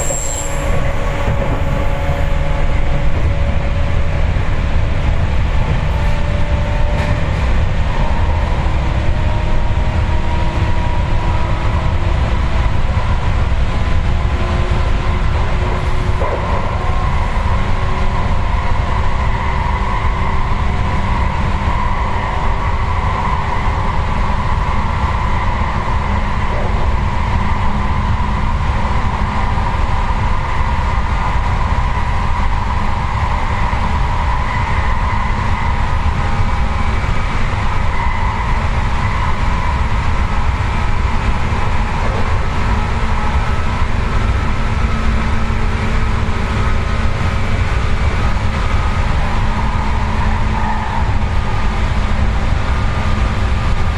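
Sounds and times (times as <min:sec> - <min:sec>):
train wheels rumbling on rails: 0:00.0 - 0:53.9.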